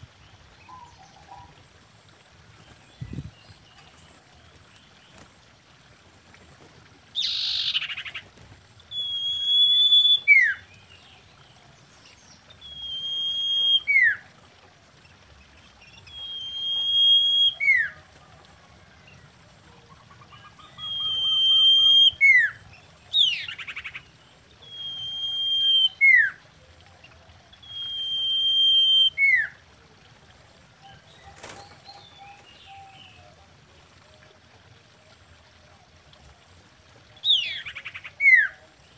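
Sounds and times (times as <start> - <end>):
bird whistling call: 8.9 - 10.6, 12.6 - 14.2, 16.0 - 18.0, 20.3 - 22.6, 24.6 - 26.4, 27.6 - 29.6.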